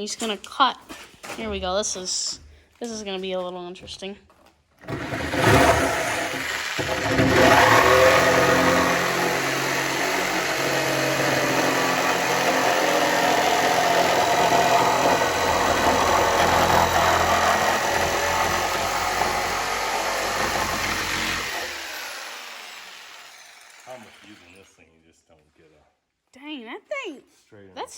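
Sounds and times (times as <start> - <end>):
power saw cutting wood: 4.8 - 24.7.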